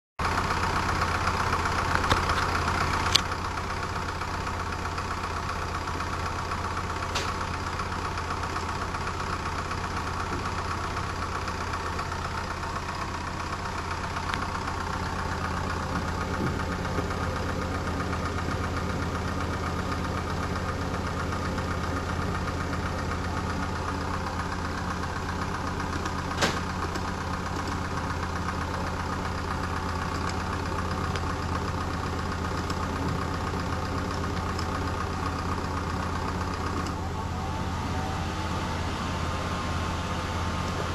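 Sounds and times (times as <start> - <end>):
computer fan drone: 30.0 - 40.9.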